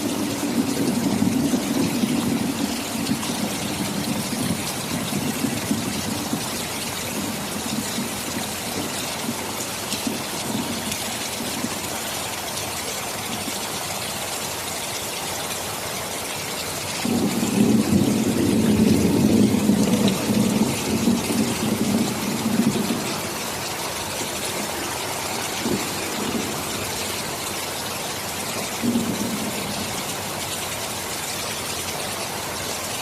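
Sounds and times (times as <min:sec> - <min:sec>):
thunder rumbling: 0:00.0 - 0:12.1, 0:17.0 - 0:30.9
steady rain hissing: 0:00.0 - 0:33.0.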